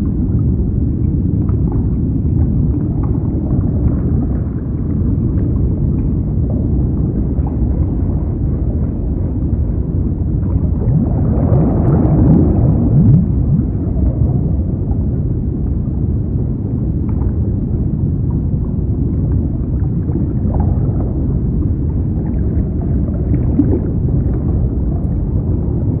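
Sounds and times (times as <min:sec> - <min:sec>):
water rushing and gurgling: 0:00.0 - 0:26.0.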